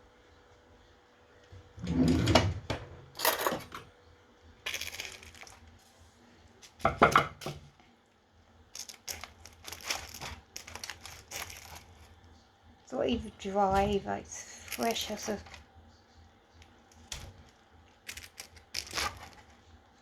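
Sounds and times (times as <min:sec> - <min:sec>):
chicken tearing and crackling: 0:04.7 - 0:05.8, 0:08.8 - 0:12.2, 0:14.5 - 0:15.7, 0:16.6 - 0:19.7.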